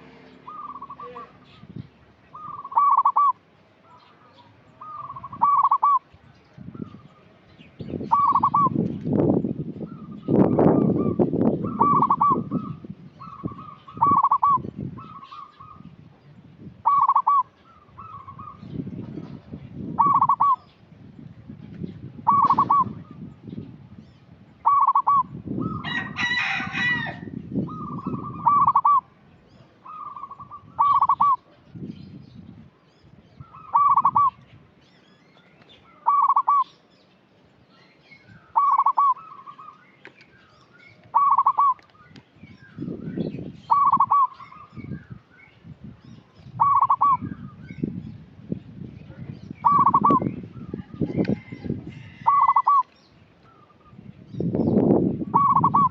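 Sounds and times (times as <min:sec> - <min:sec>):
dove cooing: 0:00.0 - 0:01.5, 0:02.3 - 0:03.4, 0:04.8 - 0:06.0, 0:08.1 - 0:08.8, 0:09.9 - 0:15.8, 0:16.8 - 0:18.6, 0:20.0 - 0:20.7, 0:22.2 - 0:23.2, 0:24.6 - 0:29.1, 0:29.8 - 0:31.5, 0:33.5 - 0:34.4, 0:35.9 - 0:36.7, 0:38.5 - 0:39.7, 0:41.1 - 0:41.9, 0:43.7 - 0:44.7, 0:46.6 - 0:47.3, 0:49.6 - 0:52.9, 0:55.3 - 0:55.9.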